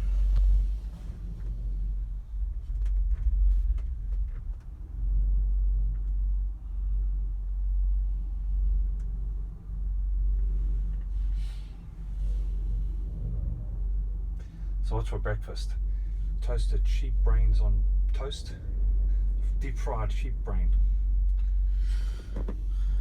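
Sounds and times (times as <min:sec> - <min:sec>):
wind buffeting: 0:00.0 - 0:15.0.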